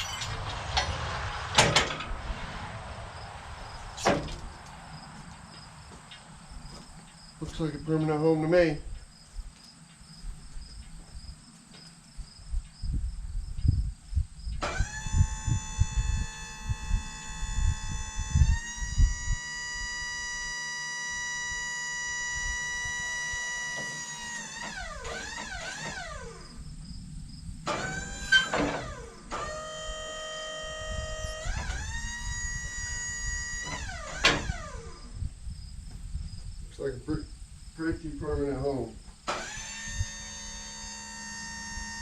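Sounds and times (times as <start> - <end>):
crickets chirping: 2.0 - 42.0
high whine with overtones: 14.8 - 24.4, 29.7 - 35.5.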